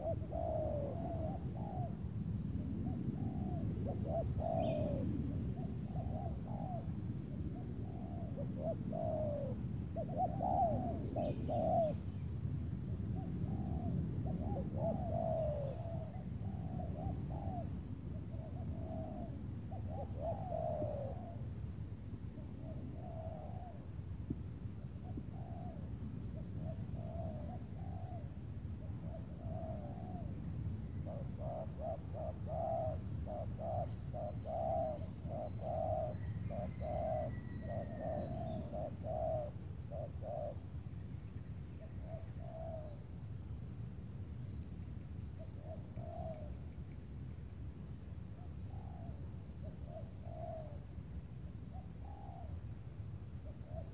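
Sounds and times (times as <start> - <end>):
doves cooing: 0.0 - 2.1, 2.9 - 12.1, 13.2 - 21.5, 22.4 - 24.0, 25.0 - 40.6, 41.8 - 43.1, 48.4 - 50.9, 51.7 - 52.6.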